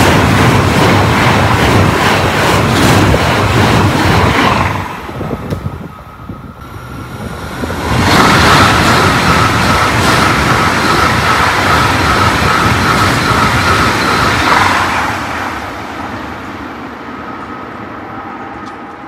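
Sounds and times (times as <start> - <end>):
high-speed train passing: 0.0 - 19.0
high whine: 5.2 - 14.8.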